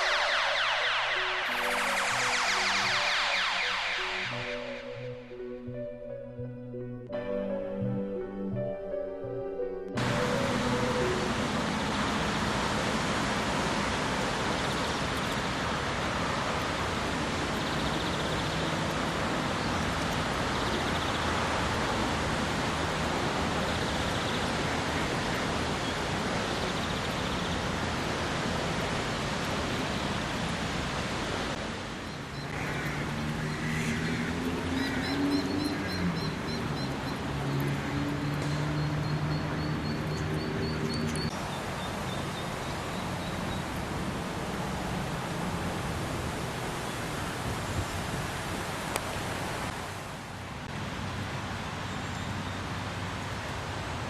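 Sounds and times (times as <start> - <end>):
steady rushing noise: 0.0 - 5.3
birds singing: 32.0 - 43.7.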